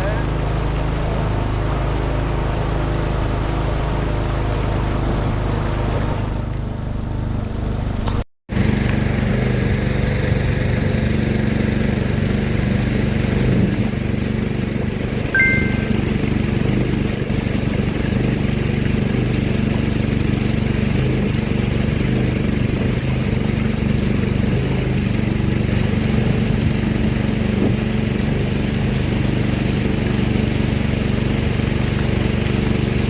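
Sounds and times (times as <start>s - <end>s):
outboard motor droning: 0.0s - 33.0s
short high chirp: 15.4s - 16.2s.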